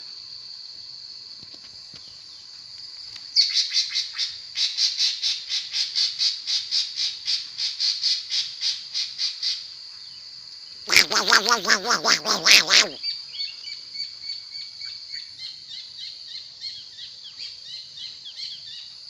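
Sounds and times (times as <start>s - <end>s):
songbird chirping: 9.9s - 15.5s.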